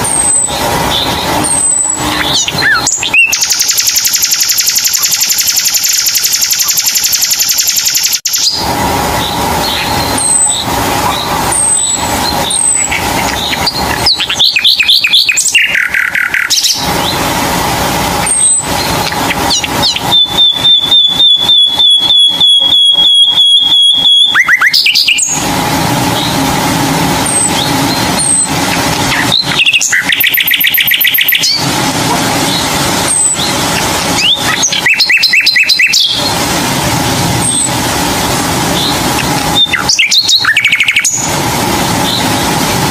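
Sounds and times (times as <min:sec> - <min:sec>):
bird trill: 0:00.0 - 0:08.6, 0:09.2 - 0:17.2, 0:18.2 - 0:25.5, 0:27.2 - 0:31.7, 0:32.5 - 0:36.4, 0:38.7 - 0:41.3
steady background hum: 0:00.0 - 0:42.9.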